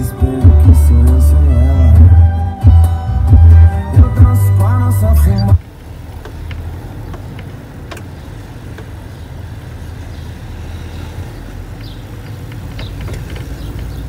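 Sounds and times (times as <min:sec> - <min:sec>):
car engine idling: 0:00.0 - 0:14.0
faint clicks: 0:11.7 - 0:14.0.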